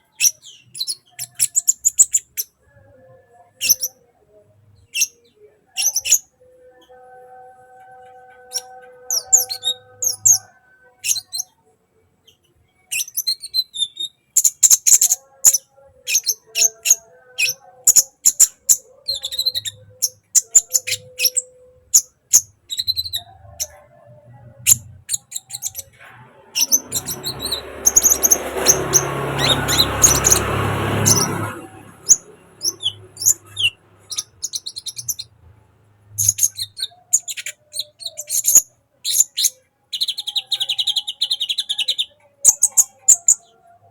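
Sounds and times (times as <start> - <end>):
sunbird chirping and trilling: 0.0 - 4.0, 4.9 - 11.6, 12.9 - 23.9, 24.7 - 35.4, 36.1 - 43.7
loud rushing noise: 26.4 - 33.2.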